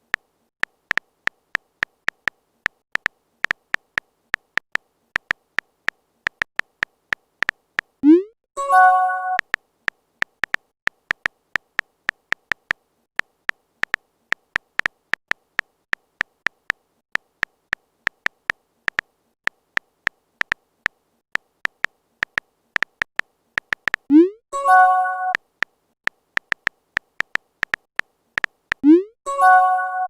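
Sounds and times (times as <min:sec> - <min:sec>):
phone keyboard typing clicks: 0:00.0 - 0:29.0
short chime: 0:29.3 - 0:30.0.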